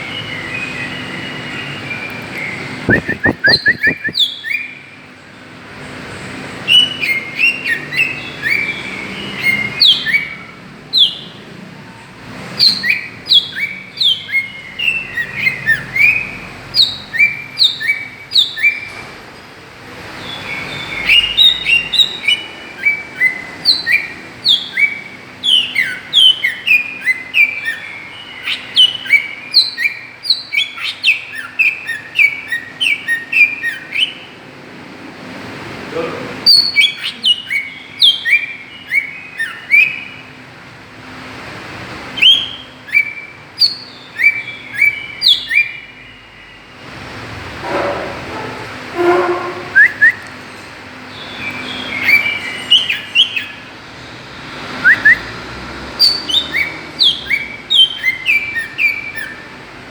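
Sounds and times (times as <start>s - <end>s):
bird singing sharp whistled notes: 0.0s - 4.8s, 49.5s - 50.3s, 54.8s - 55.4s, 56.0s - 59.5s.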